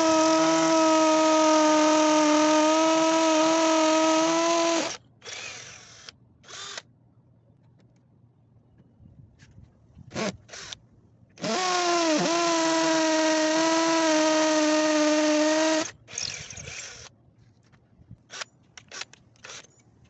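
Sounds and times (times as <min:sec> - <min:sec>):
hammer drill motor running: 0:00.0 - 0:06.8, 0:11.4 - 0:17.1.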